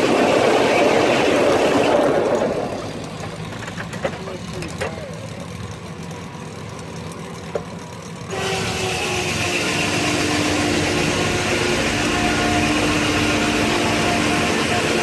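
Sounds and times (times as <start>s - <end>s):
saw whining cutting log: 0.0s - 4.7s, 8.2s - 15.0s
steam engine beating: 8.3s - 15.0s.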